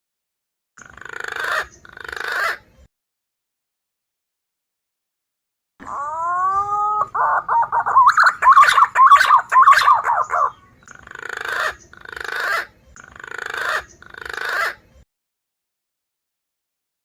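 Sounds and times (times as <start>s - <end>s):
harsh rasping bird calls: 0.8s - 2.7s, 5.8s - 14.9s
recorded pigeon calls: 5.8s - 14.9s.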